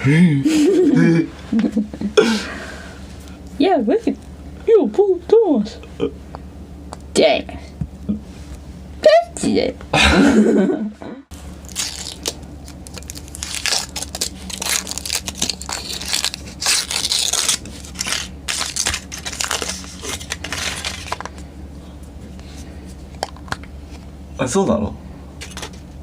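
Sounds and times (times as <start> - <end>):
foil wrapper crinkling and tearing: 11.5 - 21.3
chocolate shell cracking: 11.6 - 19.7.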